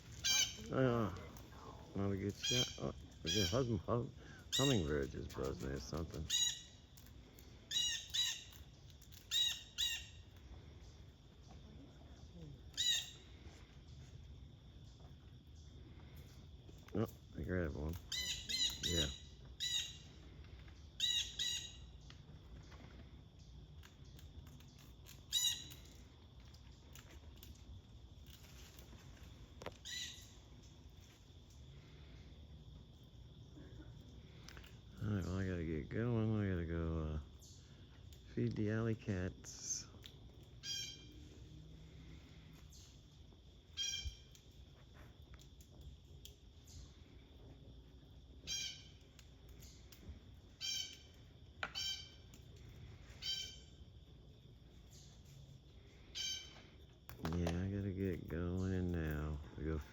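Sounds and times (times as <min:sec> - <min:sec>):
blue jay squawks: 0:00.1 - 0:00.7, 0:02.3 - 0:03.8, 0:04.4 - 0:05.1, 0:06.2 - 0:06.8, 0:07.7 - 0:08.6, 0:09.2 - 0:10.2, 0:12.8 - 0:13.3, 0:18.0 - 0:20.2, 0:21.0 - 0:21.9, 0:25.3 - 0:26.0, 0:29.8 - 0:30.4, 0:40.6 - 0:41.2, 0:43.8 - 0:44.3, 0:48.4 - 0:49.0, 0:50.6 - 0:52.3, 0:53.2 - 0:53.7, 0:56.1 - 0:56.6.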